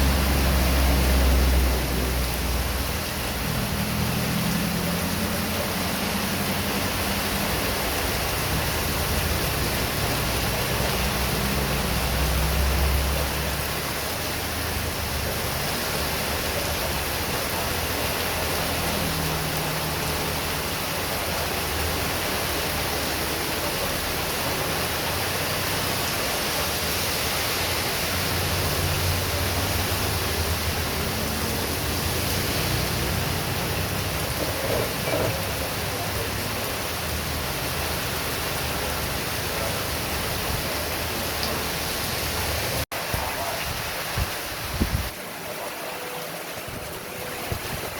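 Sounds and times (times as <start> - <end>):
heavy rain falling: 0.0 - 47.9
strong wind: 43.2 - 45.2.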